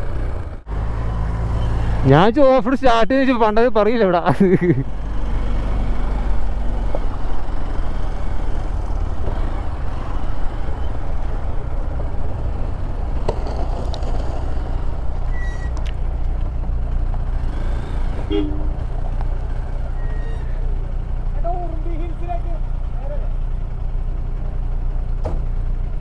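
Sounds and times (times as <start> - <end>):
vehicle engine low rumble: 0.0 - 26.0
two-note horn toot: 18.3 - 18.8.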